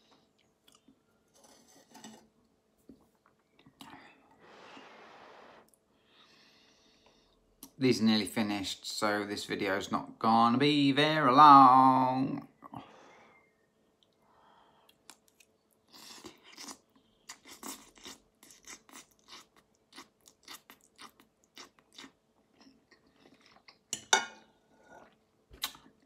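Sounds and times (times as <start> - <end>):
person chewing and slurping noodles: 15.0 - 23.9.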